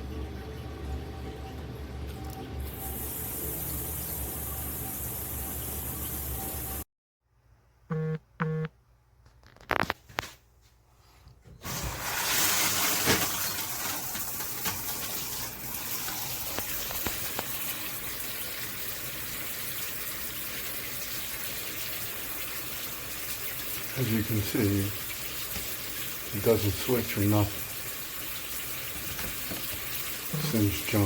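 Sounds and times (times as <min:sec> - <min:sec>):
shower head spraying water: 0:02.7 - 0:06.8
short electronic beeps: 0:07.9 - 0:08.7.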